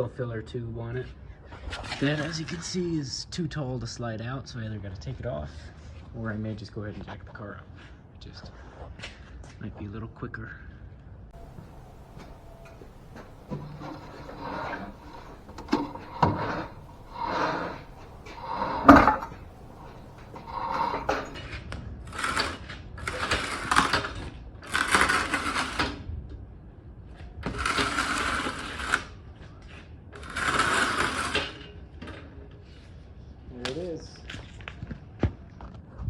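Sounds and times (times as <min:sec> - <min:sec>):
floor jack pumping: 0:11.4 - 0:21.4.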